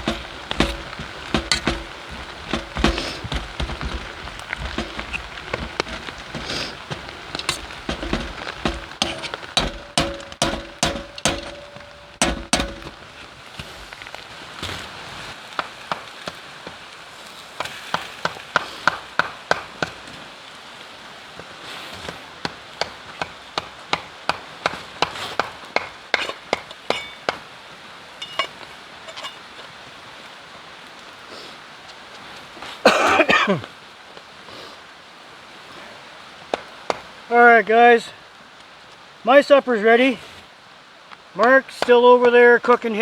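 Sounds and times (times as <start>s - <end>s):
sharp knocks and taps: 0.0s - 13.0s.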